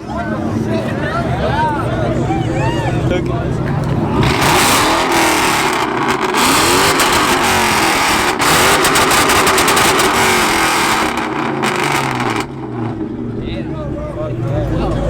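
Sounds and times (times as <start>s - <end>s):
car engine revving loud exhaust: 3.5s - 15.0s.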